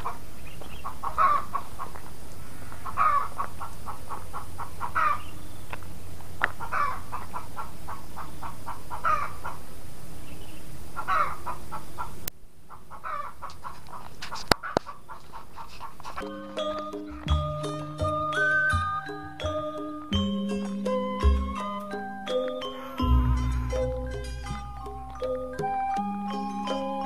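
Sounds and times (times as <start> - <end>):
chickens clucking: 0.0 - 5.8, 6.4 - 9.7, 10.4 - 18.0, 22.3 - 26.1
background hum: 0.0 - 27.0.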